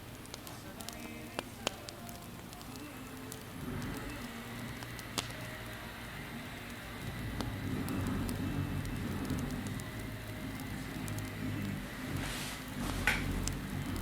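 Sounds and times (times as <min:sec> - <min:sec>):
campfire crackling: 0:00.0 - 0:14.0
low rumble of flames: 0:00.0 - 0:14.0.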